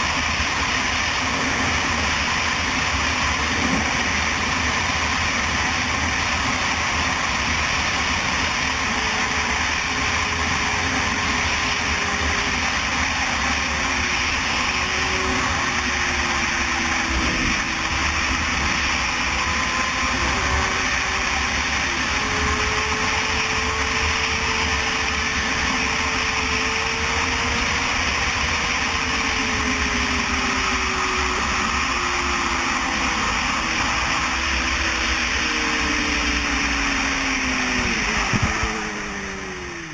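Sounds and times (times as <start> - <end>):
faint wavering engine tone: 0.0 - 39.9
road and wind noise: 0.0 - 39.9.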